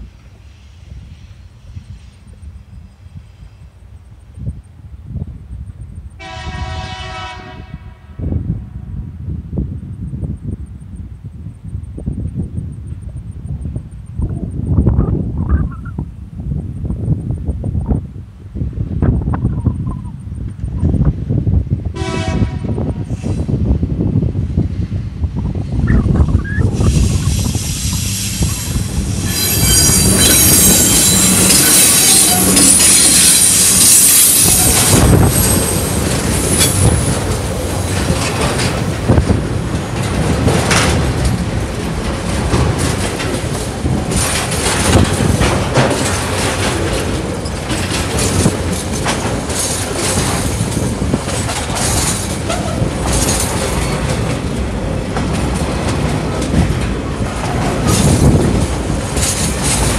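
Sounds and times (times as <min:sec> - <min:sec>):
diesel locomotives passing: 0:00.0 - 0:16.0, 0:16.8 - 0:59.9.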